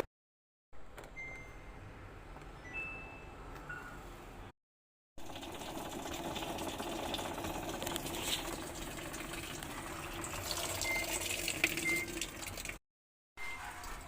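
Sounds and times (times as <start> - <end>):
short beep: 1.2 - 1.8
washing machine hum: 5.2 - 12.8
water churning in washing machine: 5.2 - 12.8.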